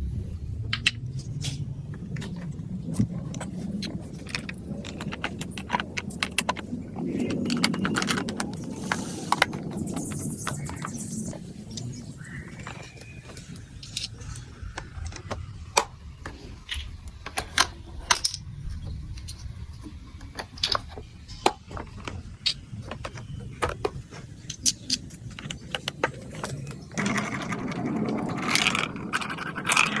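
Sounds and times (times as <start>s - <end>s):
marbles rolling on plastic track: 2.2s - 11.3s, 20.2s - 30.0s.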